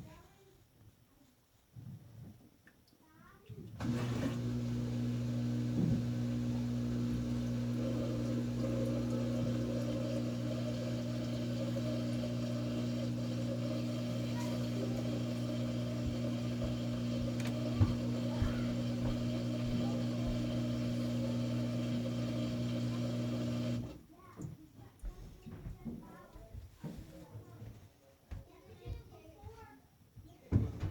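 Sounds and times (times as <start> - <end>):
washing machine motor humming: 3.8 - 24.0
washing machine knock: 5.4 - 23.8.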